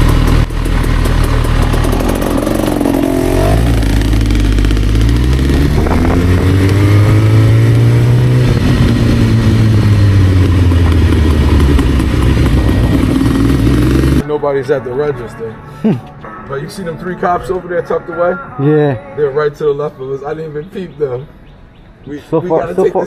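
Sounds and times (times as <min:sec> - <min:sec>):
motorcycle engines revving: 0:00.0 - 0:14.2.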